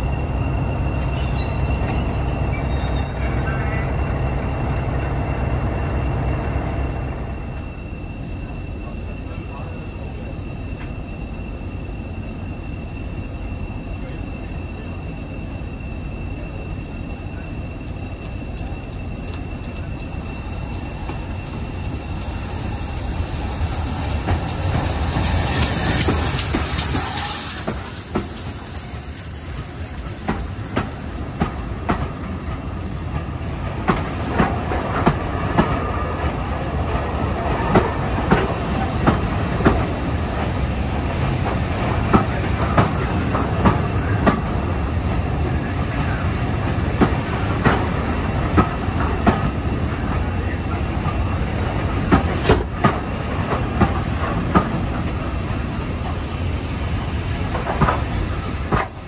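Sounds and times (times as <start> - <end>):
train rumbling on track: 0.0 - 59.0
hiss: 16.4 - 33.2, 37.6 - 59.0.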